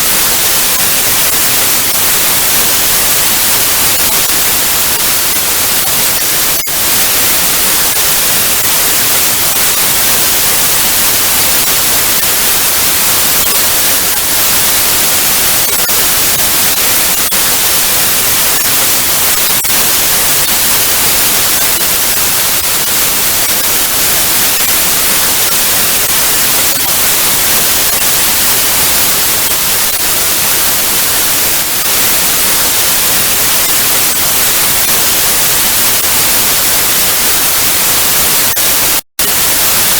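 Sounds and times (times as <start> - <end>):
television static hiss: 0.0 - 39.9.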